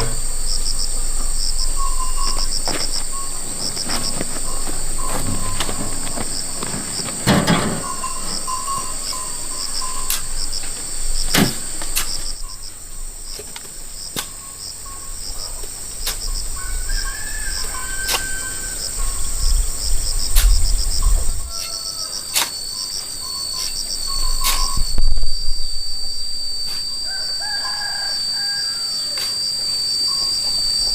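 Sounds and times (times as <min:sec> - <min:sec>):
insects chirring: 0:00.0 - 0:30.9
low rumble: 0:24.0 - 0:27.0.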